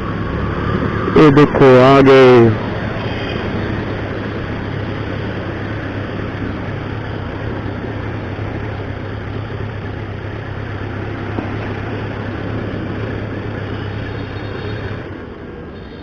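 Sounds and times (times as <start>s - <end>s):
motorcycle engine hum: 0.0s - 16.0s
wind and road noise: 0.0s - 16.0s.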